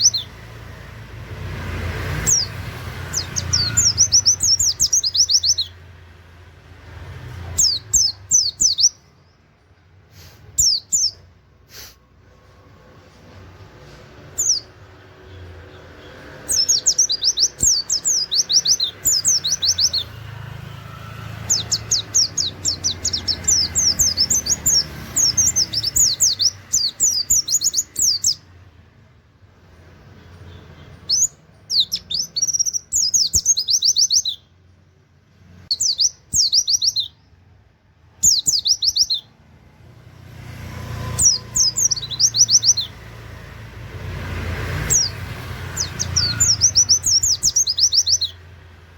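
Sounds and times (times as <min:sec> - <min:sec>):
bird singing high sharp notes: 0:00.0 - 0:00.4, 0:02.2 - 0:05.9, 0:07.5 - 0:09.4, 0:10.4 - 0:11.3, 0:14.2 - 0:15.4, 0:16.0 - 0:28.5, 0:30.4 - 0:34.5, 0:35.6 - 0:37.3, 0:38.2 - 0:39.4, 0:40.9 - 0:43.2, 0:44.8 - 0:48.5.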